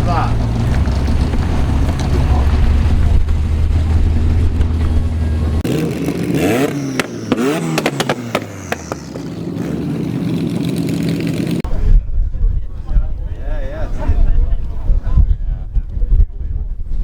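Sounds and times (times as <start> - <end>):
car engine idling and revving: 0.0 - 11.7
exhaust cracks: 0.0 - 11.7.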